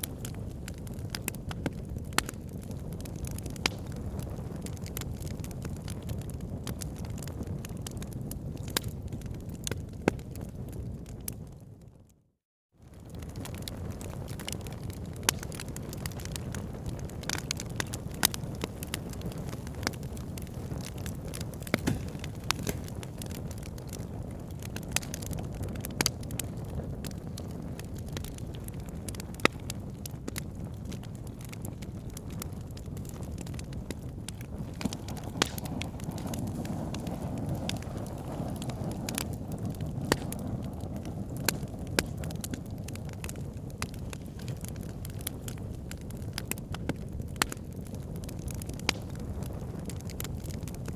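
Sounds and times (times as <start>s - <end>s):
fire crackling and popping: 0.0s - 12.2s, 12.8s - 50.9s.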